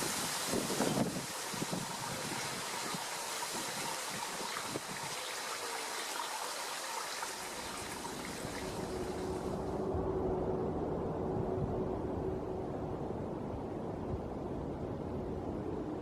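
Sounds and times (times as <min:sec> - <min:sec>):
running water rushing: 0:00.0 - 0:09.8.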